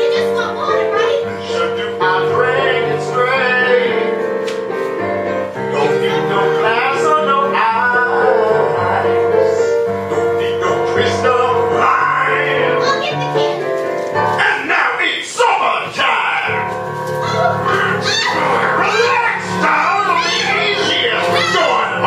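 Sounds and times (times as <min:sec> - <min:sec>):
piano and keyboard accompaniment: 0:00.0 - 0:22.0
person singing: 0:01.2 - 0:04.2, 0:05.6 - 0:12.9, 0:17.3 - 0:22.0.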